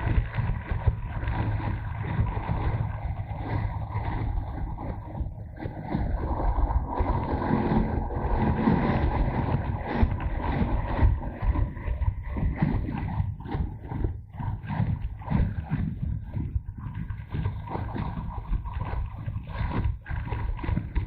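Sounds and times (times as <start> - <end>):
motorcycle engine running: 0.0 - 15.2
wind buffeting microphone: 0.0 - 21.0.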